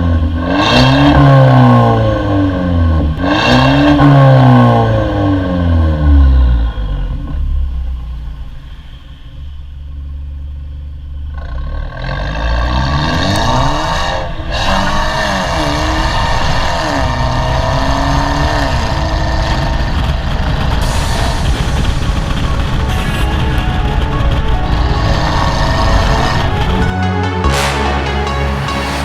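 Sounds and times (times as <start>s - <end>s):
car engine revving: 0.0s - 7.8s, 11.3s - 23.0s.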